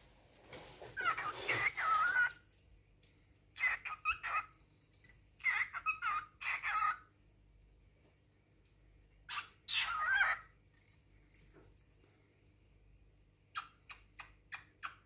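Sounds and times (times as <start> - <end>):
cockatiel chattering and warbling: 1.0 - 2.4, 3.6 - 4.6, 5.4 - 7.1, 9.3 - 10.6, 13.5 - 15.0.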